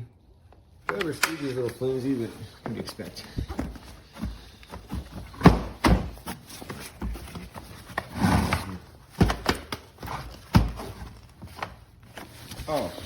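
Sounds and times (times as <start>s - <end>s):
vacuum parts knocking and clunking: 2.6s - 12.3s.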